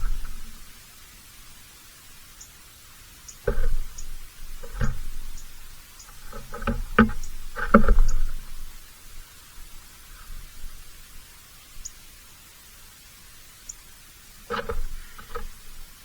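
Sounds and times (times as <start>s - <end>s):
dull thumps and knocks: 0.0s - 0.6s, 3.5s - 8.7s, 14.5s - 15.8s
steady hiss: 0.0s - 16.0s.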